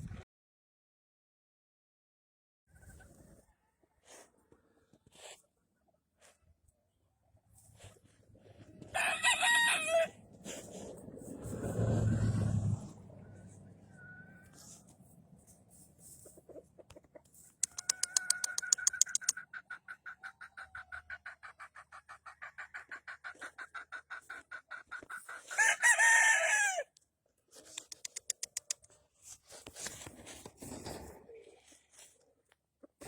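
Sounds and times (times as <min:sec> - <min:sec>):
rooster crowing: 0:08.9 - 0:10.2, 0:17.7 - 0:19.2, 0:25.5 - 0:26.9
rustling noise: 0:10.3 - 0:12.0, 0:29.1 - 0:32.2
rapid high chirping pulses: 0:17.6 - 0:19.3.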